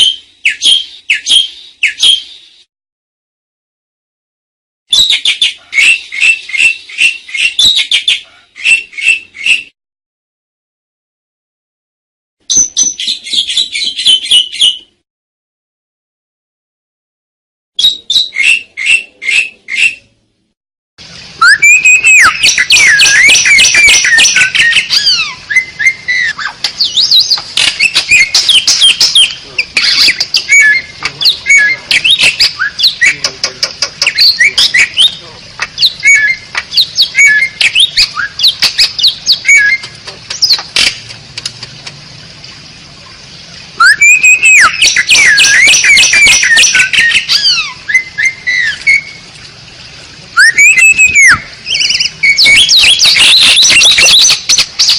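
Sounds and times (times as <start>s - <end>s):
starling singing whistles and trills: 0.0s - 2.6s, 4.9s - 9.8s, 12.5s - 14.9s, 17.8s - 20.1s, 21.4s - 40.7s, 43.8s - 49.2s, 50.4s - 54.9s.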